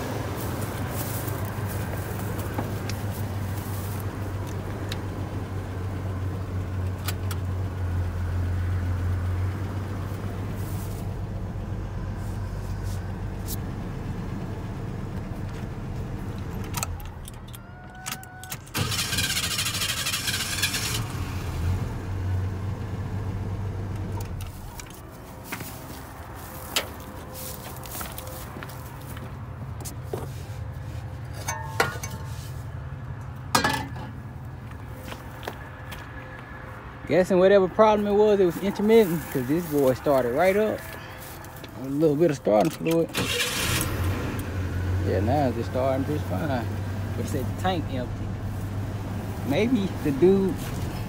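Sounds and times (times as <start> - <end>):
pickup truck engine idling: 0.0 - 17.5.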